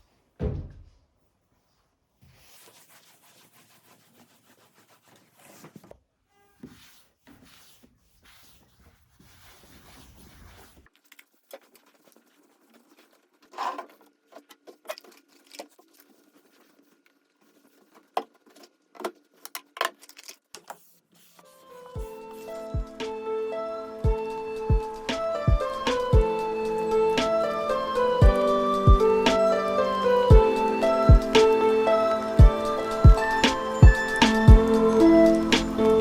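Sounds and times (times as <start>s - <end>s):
soft rubbing and rustling: 1.4s - 19.5s, 20.2s - 22.5s.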